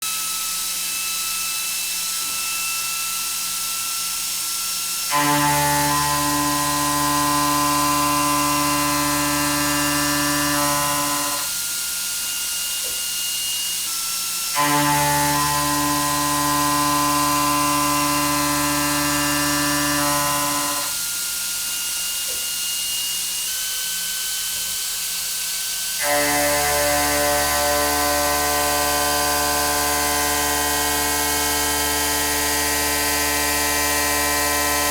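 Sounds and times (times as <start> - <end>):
machine tool high whine: 2.5 - 34.9.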